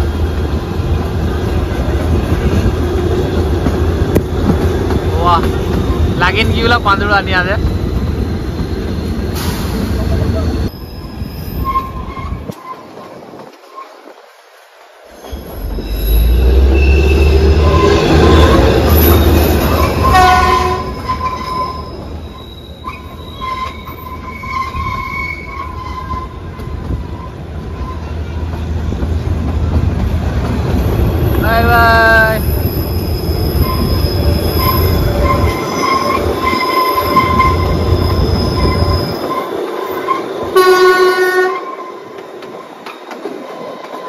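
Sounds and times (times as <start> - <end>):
train rumbling: 0.0 - 44.0
high wheel squeal: 5.9 - 14.0, 15.1 - 28.4, 32.0 - 40.8.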